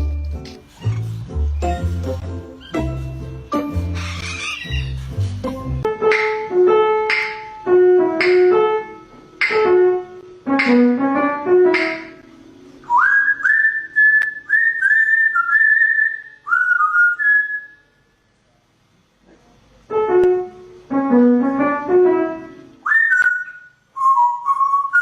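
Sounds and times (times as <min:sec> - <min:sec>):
piano music: 0:00.0 - 0:12.8, 0:19.9 - 0:22.8
bird whistling a tune: 0:12.8 - 0:17.9, 0:22.8 - 0:25.0.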